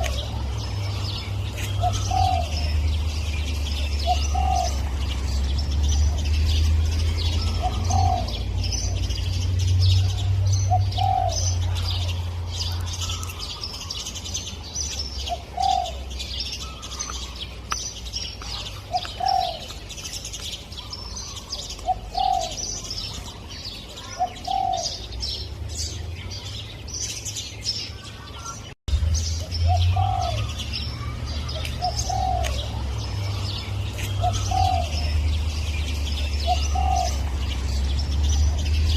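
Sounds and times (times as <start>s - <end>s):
dove cooing: 0.0s - 3.0s, 3.6s - 5.4s, 7.3s - 9.2s, 10.0s - 12.2s, 15.2s - 17.3s, 18.5s - 19.8s, 20.9s - 23.2s, 24.0s - 25.1s, 29.7s - 33.0s, 33.6s - 35.4s, 36.4s - 37.8s
small birds chirping: 0.0s - 38.9s.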